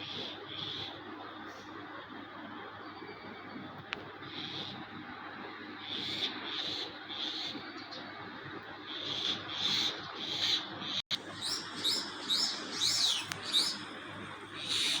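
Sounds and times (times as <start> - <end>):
small birds chirping: 5.8 - 8.2, 8.8 - 15.0.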